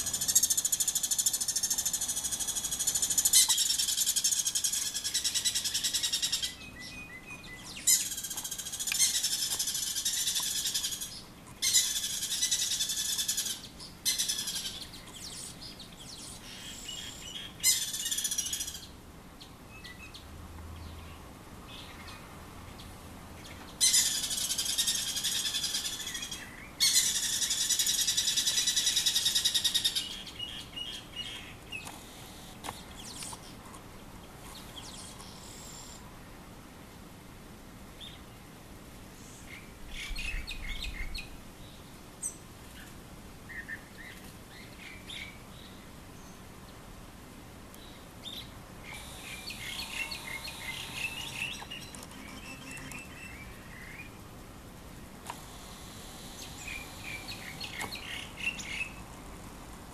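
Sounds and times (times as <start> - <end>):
birds alarm calls: 0.0 - 18.9, 23.5 - 33.6, 47.8 - 54.2, 55.3 - 59.1.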